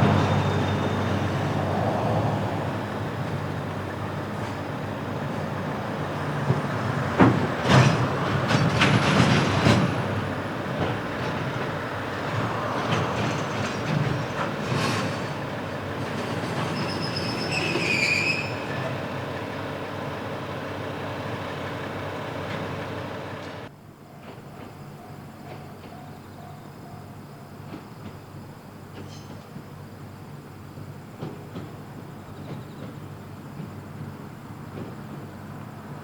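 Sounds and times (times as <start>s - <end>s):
high wheel squeal: 0.0s - 10.3s, 12.4s - 19.8s
freight train running past: 0.0s - 36.0s
wheel clacks over rail joints: 2.9s - 19.7s, 28.9s - 29.8s, 31.1s - 36.0s.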